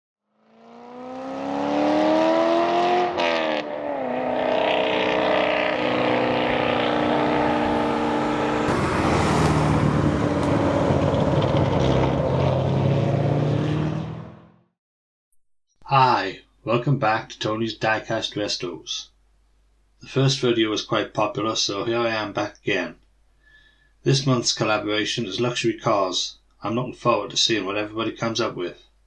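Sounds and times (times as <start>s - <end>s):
car engine accelerating: 0.3s - 14.6s
road and wind noise: 0.4s - 14.6s.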